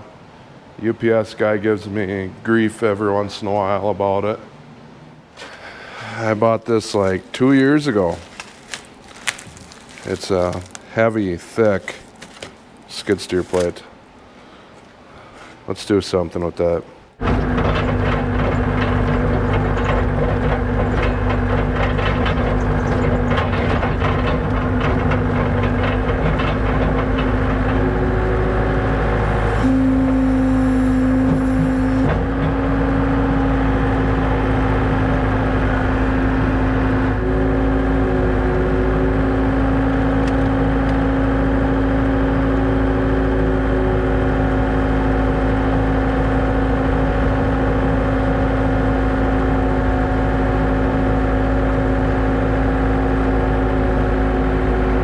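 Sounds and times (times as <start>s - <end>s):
engine running and revving: 17.2s - 55.0s.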